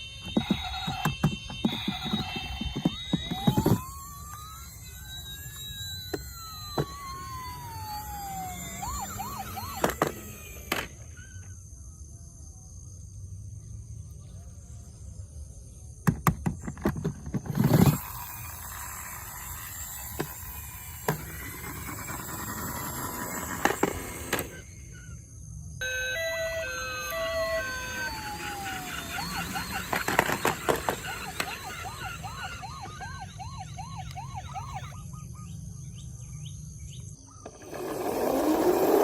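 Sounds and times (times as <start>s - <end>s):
toy siren wailing: 0.0s - 11.5s, 17.5s - 35.5s.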